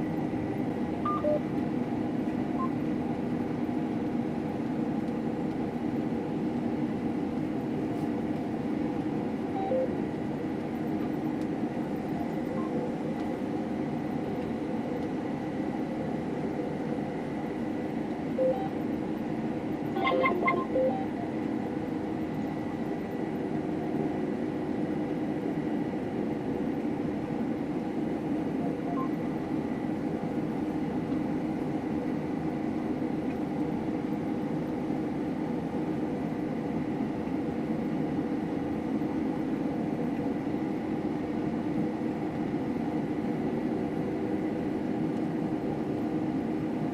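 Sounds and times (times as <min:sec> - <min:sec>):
short beeps: 0:01.1 - 0:01.4, 0:09.6 - 0:09.9, 0:18.4 - 0:18.8, 0:20.0 - 0:21.4, 0:28.6 - 0:29.2
combine harvester droning: 0:19.8 - 0:22.0.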